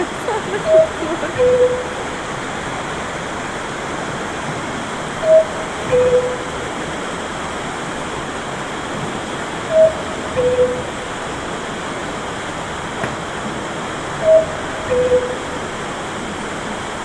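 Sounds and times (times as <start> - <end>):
cuckoo clock call: 0.6 - 2.3, 5.2 - 6.9, 9.6 - 11.3, 14.2 - 15.9.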